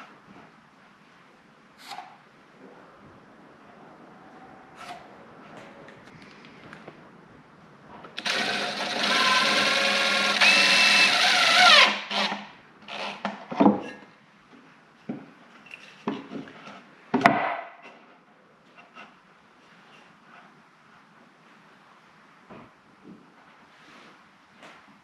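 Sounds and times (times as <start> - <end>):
power drill running: 8.2 - 13.2.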